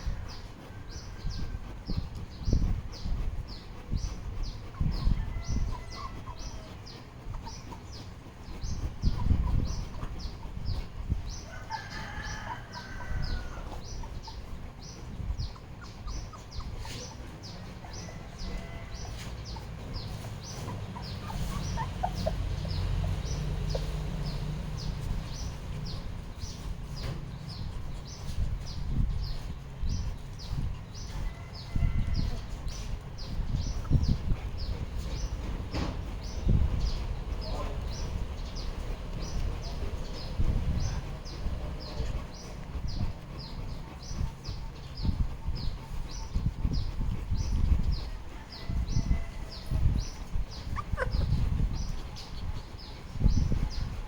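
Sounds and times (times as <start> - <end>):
low rumbling noise: 13.0 - 54.0.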